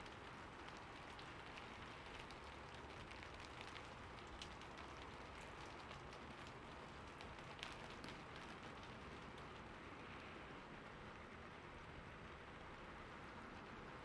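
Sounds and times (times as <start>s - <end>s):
raindrop ticks: 0.0s - 9.7s.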